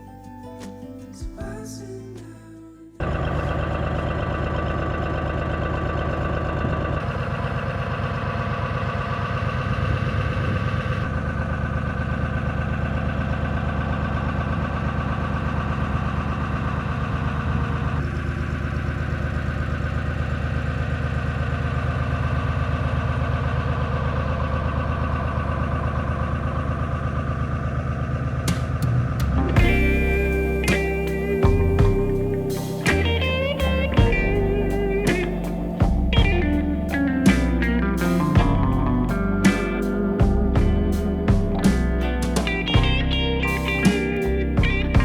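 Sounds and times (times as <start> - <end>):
boat engine running: 3.0 - 45.0.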